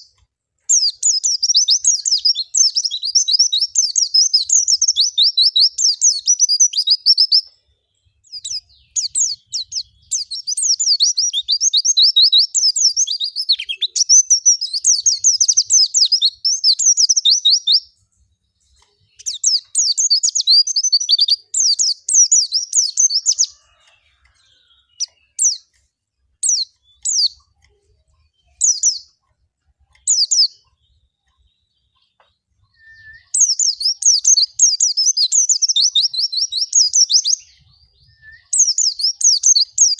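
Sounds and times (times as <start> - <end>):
bird chattering chirp song: 0.0 - 39.9.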